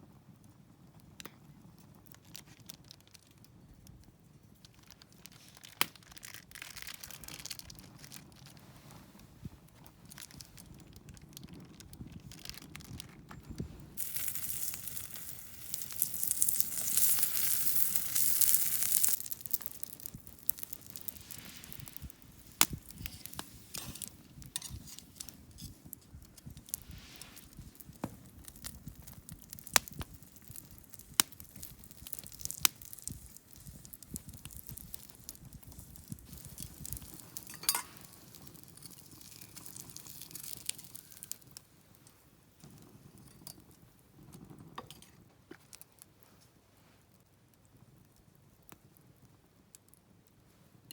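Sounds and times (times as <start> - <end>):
campfire crackling and popping: 0.1 - 46.2.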